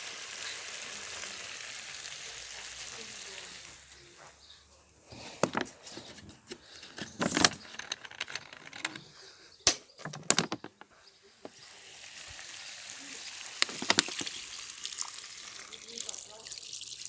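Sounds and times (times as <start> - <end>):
food sizzling in a pot: 0.0 - 4.4, 11.3 - 17.0
knocks and clatters at pot: 13.6 - 14.5.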